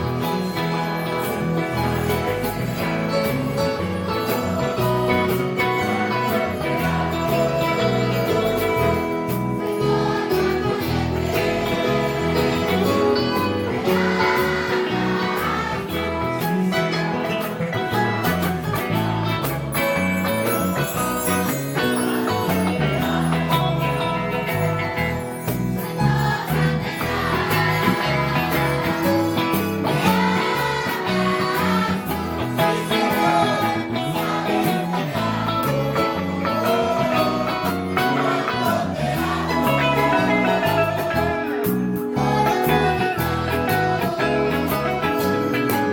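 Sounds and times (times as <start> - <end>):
children's choir singing: 0.0 - 17.6, 20.4 - 45.9
bass: 0.0 - 45.9
guitars: 0.0 - 45.9
jingling bells: 0.1 - 14.8, 19.5 - 33.4
tambourine: 18.9 - 38.2.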